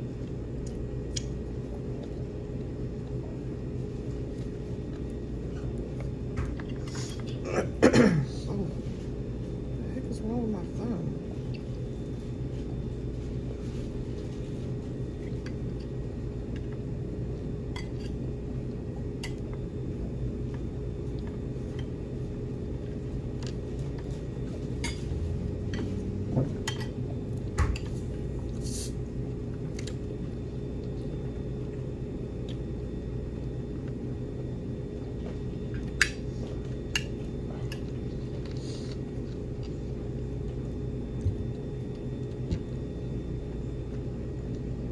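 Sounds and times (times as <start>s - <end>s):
low room hum: 0.0s - 44.9s.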